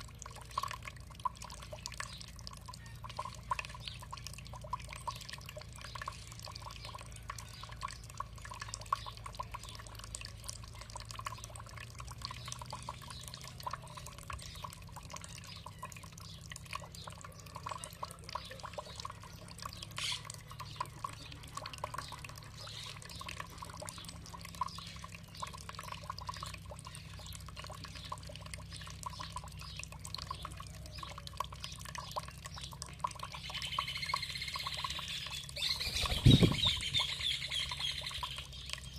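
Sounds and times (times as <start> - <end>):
water trickling and dripping: 0.0 - 38.9.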